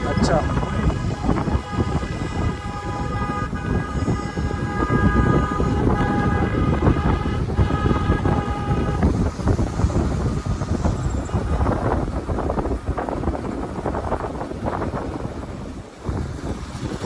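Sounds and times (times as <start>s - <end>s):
vehicle horn blasts: 0.0s - 11.9s
motorcycle engine running: 0.0s - 17.0s
wind rumble on microphone: 0.0s - 17.0s.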